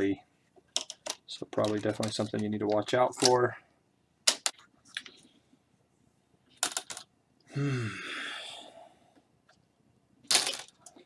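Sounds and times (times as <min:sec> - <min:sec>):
person sighing: 0:07.5 - 0:09.1.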